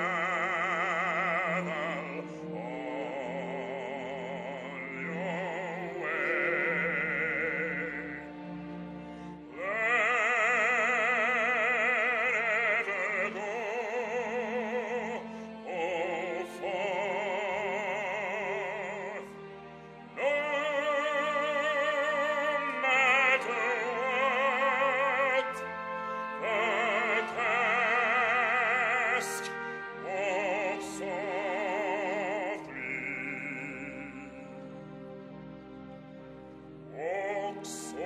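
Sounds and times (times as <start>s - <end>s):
steady musical accompaniment: 0.0s - 38.0s.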